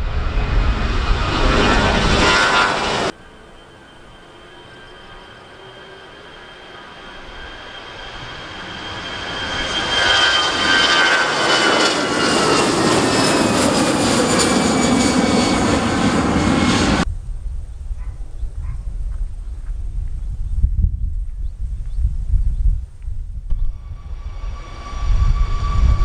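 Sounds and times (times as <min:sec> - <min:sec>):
airliner passing: 0:00.0 - 0:26.0
low rumble: 0:16.7 - 0:26.0
engine whine falling in pitch: 0:23.4 - 0:26.0.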